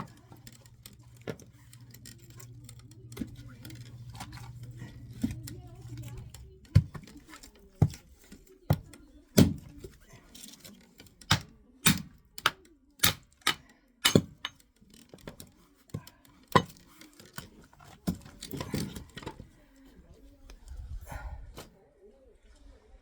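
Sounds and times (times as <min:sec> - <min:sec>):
axe chopping wood: 0:06.2 - 0:07.2, 0:08.7 - 0:09.9, 0:11.2 - 0:14.6.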